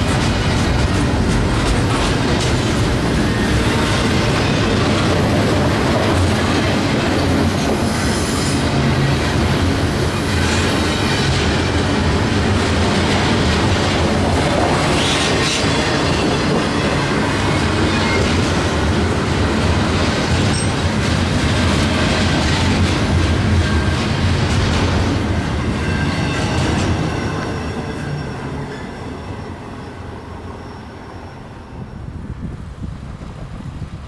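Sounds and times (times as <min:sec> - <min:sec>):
freight train rumbling past: 0:00.0 - 0:34.0
high wheel squeal: 0:07.0 - 0:11.4, 0:25.8 - 0:32.3.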